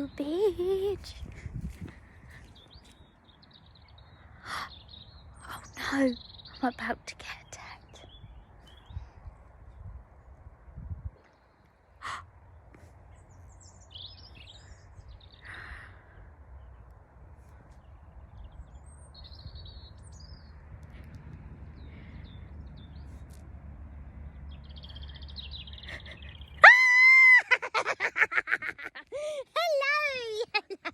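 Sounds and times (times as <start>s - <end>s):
low wind rumble: 0.0s - 30.9s
high-pitched squealing cries: 26.6s - 28.5s.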